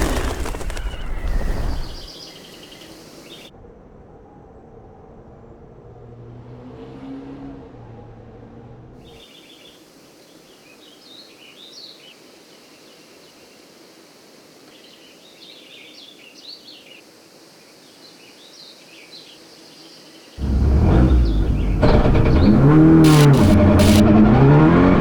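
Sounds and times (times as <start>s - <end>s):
small birds chirping: 0.0s - 3.5s, 9.1s - 24.0s
low vehicle sound: 20.4s - 25.0s.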